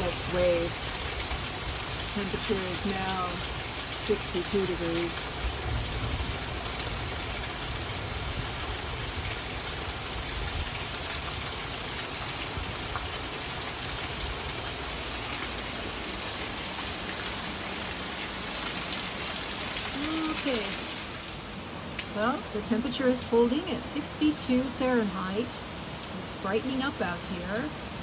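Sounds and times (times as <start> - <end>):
low thunder rumble: 0.0 - 11.7
steady rain falling: 0.0 - 28.0.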